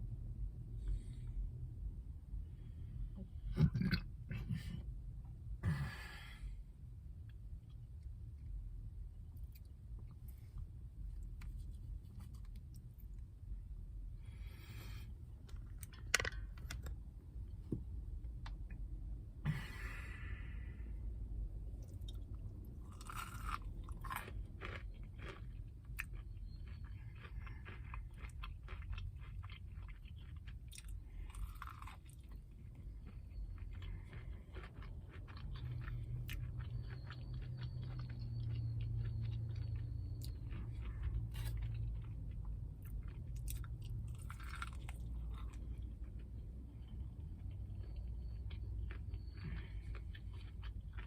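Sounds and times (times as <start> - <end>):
low hum: 0.0 - 28.7
chewing and crunching fried food: 2.3 - 4.9, 7.1 - 51.0.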